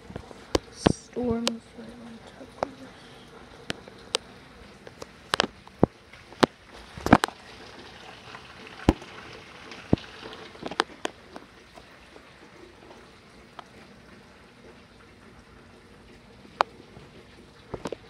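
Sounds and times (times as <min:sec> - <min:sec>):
heavy rain hissing: 0:00.0 - 0:05.4.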